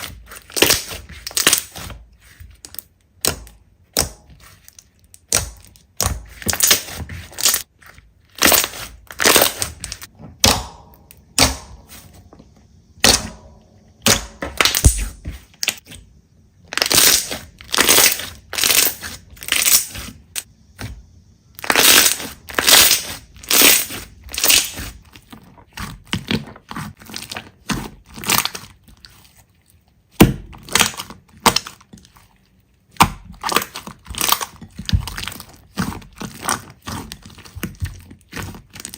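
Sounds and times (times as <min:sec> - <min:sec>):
slime squeezed crackling: 0:03.9 - 0:10.5, 0:16.7 - 0:20.4, 0:21.6 - 0:29.4.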